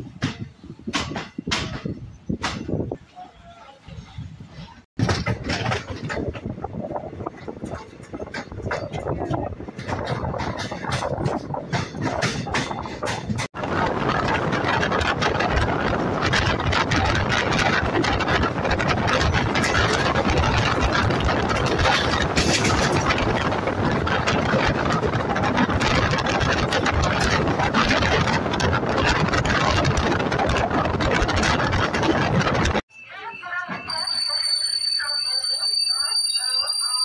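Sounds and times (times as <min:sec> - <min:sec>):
train rumbling and rattling: 0:00.0 - 0:32.9
train wheel clicks: 0:05.0 - 0:32.8.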